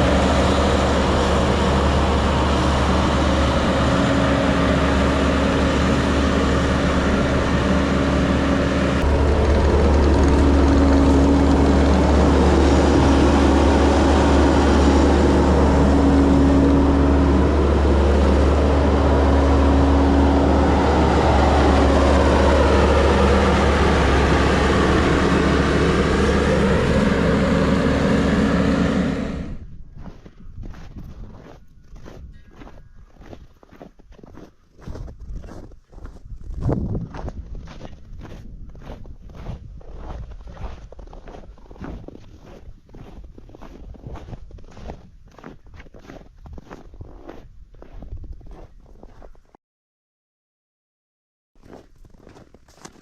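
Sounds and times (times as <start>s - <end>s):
engine droning: 0.0s - 30.2s.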